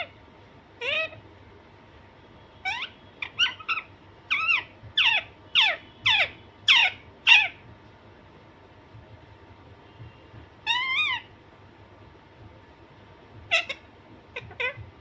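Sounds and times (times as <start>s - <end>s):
parakeet harsh calls: 0.8s - 1.2s, 2.6s - 7.7s, 10.6s - 11.3s, 13.5s - 14.9s.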